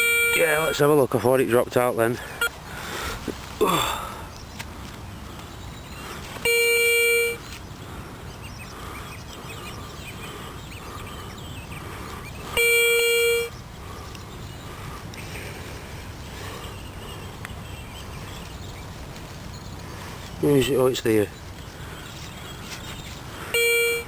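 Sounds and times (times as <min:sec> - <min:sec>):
metal detector beeps: 0:00.0 - 0:00.9, 0:05.7 - 0:07.7, 0:12.5 - 0:13.7, 0:22.8 - 0:24.0.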